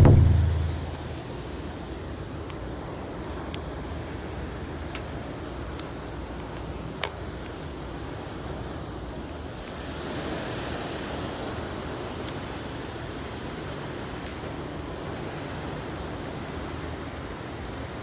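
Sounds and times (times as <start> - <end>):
water rushing: 0.0 - 1.1.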